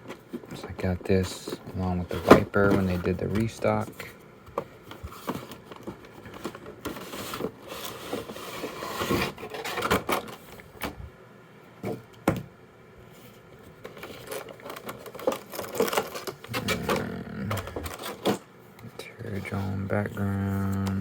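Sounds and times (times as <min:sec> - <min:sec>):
packaging rustling: 0:13.8 - 0:18.4.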